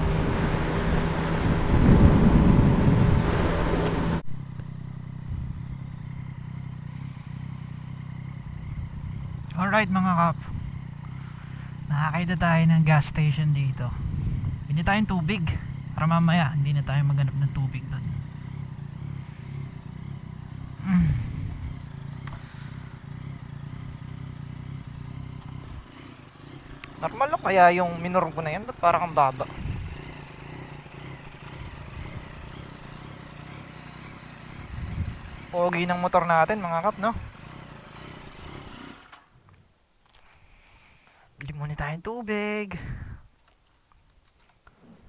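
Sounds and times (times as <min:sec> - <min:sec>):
wind rush: 0:00.0 - 0:04.3, 0:13.9 - 0:14.7
motorcycle engine riding: 0:00.0 - 0:41.2.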